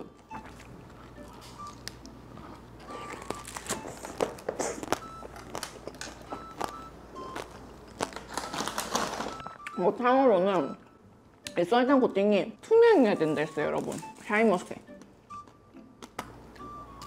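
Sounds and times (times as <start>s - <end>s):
candied fruit crunching: 0.0s - 9.8s, 13.4s - 17.0s.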